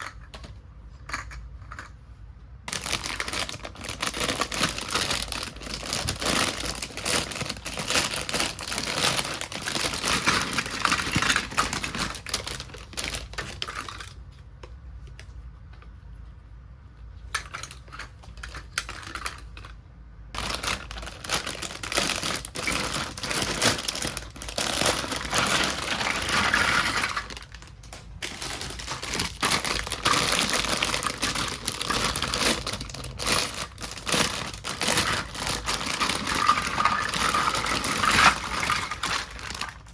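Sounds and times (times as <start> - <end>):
plastic toy pieces clicking: 2.7 - 14.2, 20.4 - 39.9
plastic packaging crinkling: 2.7 - 14.3, 17.3 - 19.8, 20.4 - 39.9.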